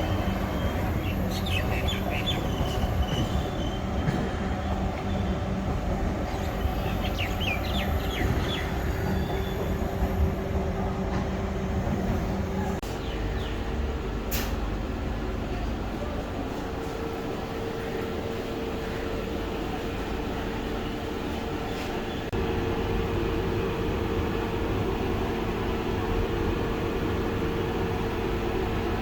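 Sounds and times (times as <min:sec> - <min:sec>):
electric train rumbling on track: 0:00.0 - 0:29.0
high wheel squeals: 0:06.5 - 0:10.4.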